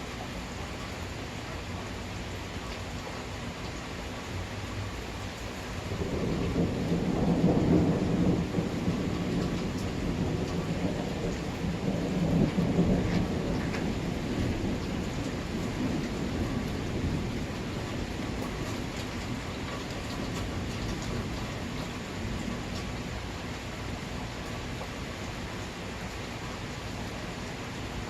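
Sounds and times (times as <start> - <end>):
steady rain: 0.0 - 28.0
rolling thunder: 5.9 - 22.9.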